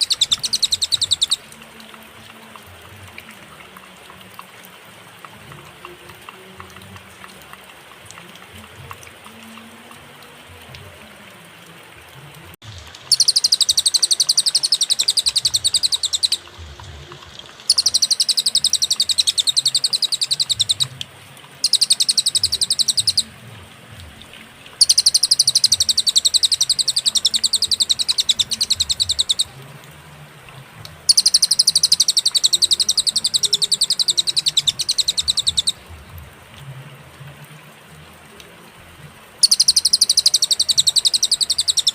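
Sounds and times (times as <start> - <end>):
bird trilling chatter: 0.0 - 1.4, 13.1 - 16.4, 17.7 - 20.9, 21.6 - 23.3, 24.8 - 29.5, 31.1 - 35.8, 39.4 - 41.9.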